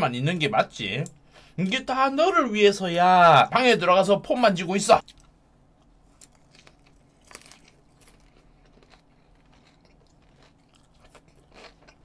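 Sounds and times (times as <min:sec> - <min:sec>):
crunching and chewing: 0:05.0 - 0:12.0.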